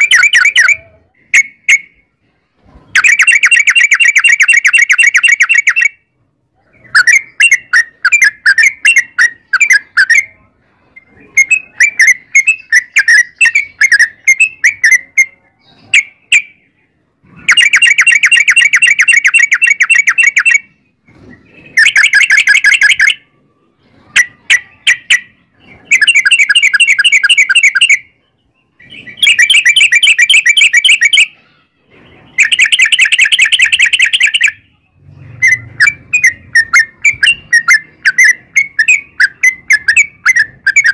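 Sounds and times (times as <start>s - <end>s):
bird chattering and whistling: 0.0s - 2.0s, 2.8s - 40.9s
bird rapid rolling trills: 2.8s - 6.0s, 17.3s - 40.9s.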